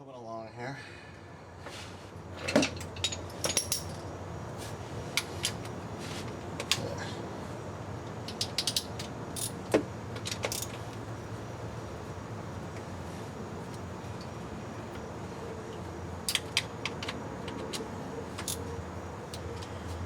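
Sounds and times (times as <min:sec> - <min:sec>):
steady low hum: 0:00.5 - 0:20.0
metal clinking: 0:02.8 - 0:04.1.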